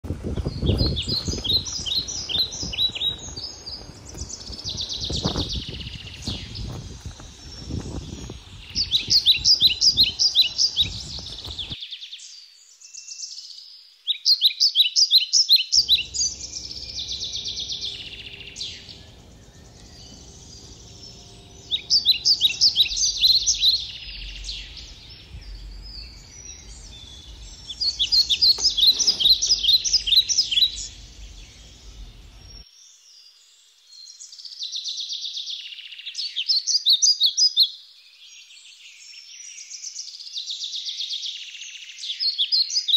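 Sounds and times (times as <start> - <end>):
songbird singing: 0.0 - 42.9
low background rumble: 0.1 - 11.8, 15.8 - 32.6.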